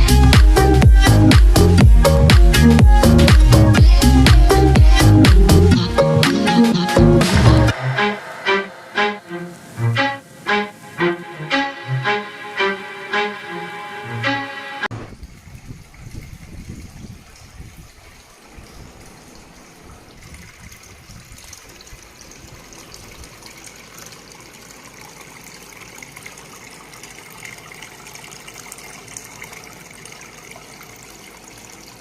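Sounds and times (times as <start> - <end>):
fountain water trickling and splashing: 14.9 - 32.0.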